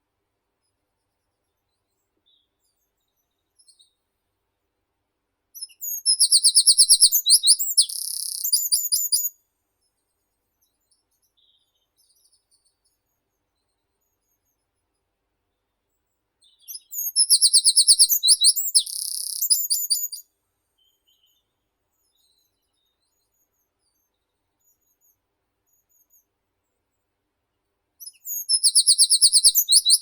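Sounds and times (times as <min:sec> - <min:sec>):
faint bird chirps: 0:00.6 - 0:04.6, 0:05.6 - 0:26.9, 0:28.0 - 0:30.0
songbird singing: 0:05.6 - 0:09.4, 0:16.4 - 0:26.2, 0:28.0 - 0:30.0.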